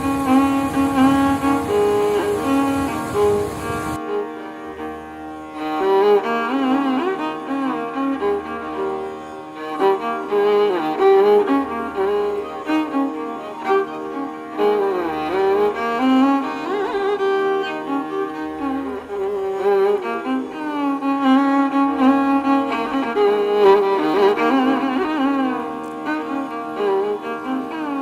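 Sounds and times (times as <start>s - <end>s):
held drone: 0.0s - 4.0s.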